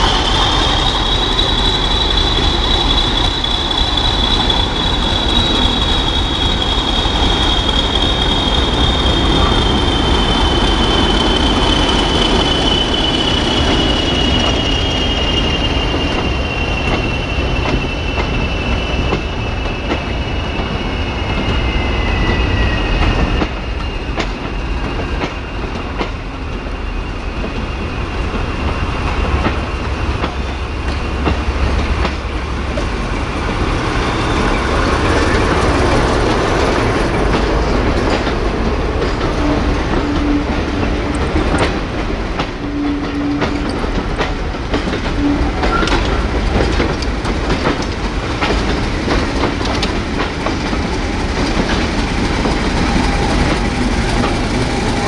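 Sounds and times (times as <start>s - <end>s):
diesel locomotive running: 0.0s - 55.0s
steel wheels squealing: 0.0s - 55.0s
wheels clicking over rail joints: 29.0s - 55.0s.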